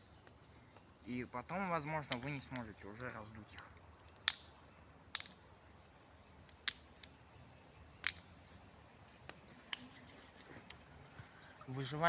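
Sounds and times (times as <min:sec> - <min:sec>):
campfire crackling: 0:00.0 - 0:12.0
sharp pops of fire: 0:02.0 - 0:05.4, 0:06.4 - 0:07.1, 0:08.0 - 0:08.3.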